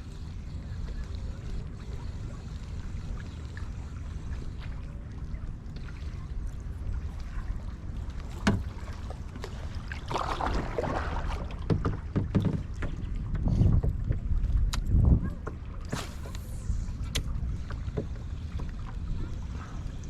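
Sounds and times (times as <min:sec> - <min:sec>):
water sloshing against kayak: 0:00.0 - 0:20.0
water splash: 0:08.2 - 0:12.0, 0:15.8 - 0:17.3
knocks on hull: 0:08.4 - 0:08.8, 0:10.1 - 0:14.3
wind on microphone: 0:10.2 - 0:20.0.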